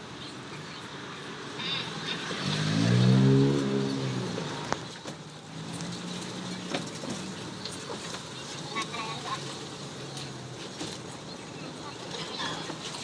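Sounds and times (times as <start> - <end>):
motor vehicle passing: 1.6 - 8.7.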